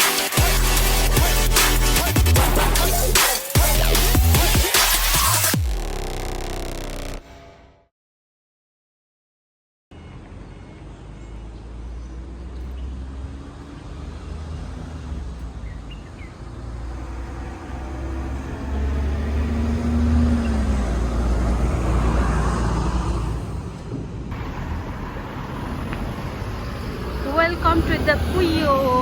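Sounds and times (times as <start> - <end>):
road vehicle rumble: 9.9 - 29.0.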